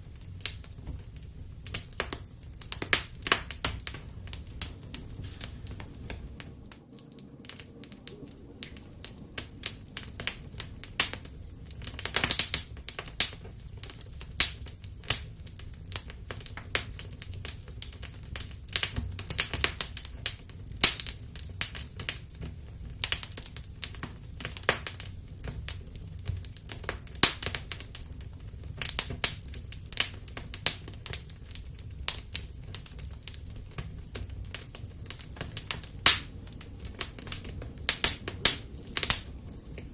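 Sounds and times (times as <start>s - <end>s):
fireplace fire crackling: 0.0s - 39.9s
flames rumbling: 0.0s - 39.9s.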